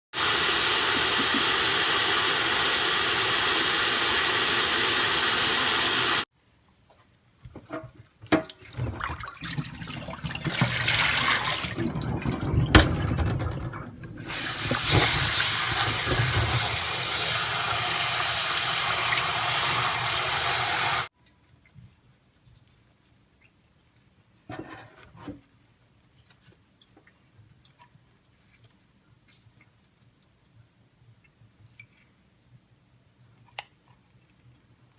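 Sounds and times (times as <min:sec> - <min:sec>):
tap water running into sink: 0:00.2 - 0:06.2, 0:08.4 - 0:21.1
water splashing and knocking: 0:07.6 - 0:21.1.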